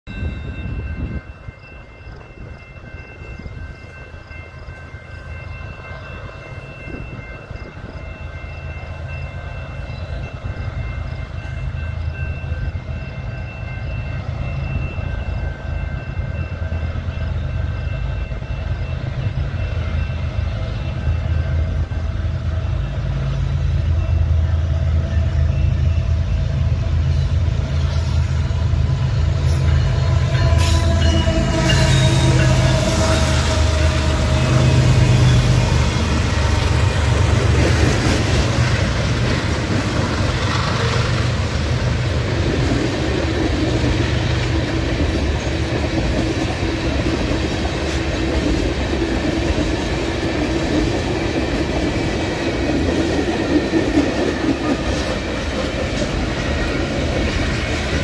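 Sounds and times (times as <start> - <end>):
diesel locomotives rumbling past: 0.0 - 58.0
wheels clacking over rail joints: 27.9 - 58.0.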